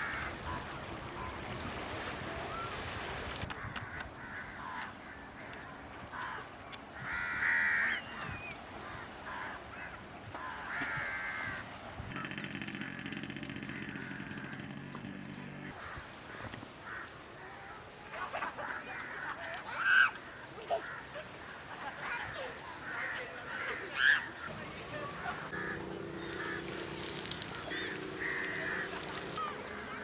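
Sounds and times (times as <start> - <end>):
outdoor background noise: 0.0 - 30.0
harsh bird calls: 24.0 - 30.0.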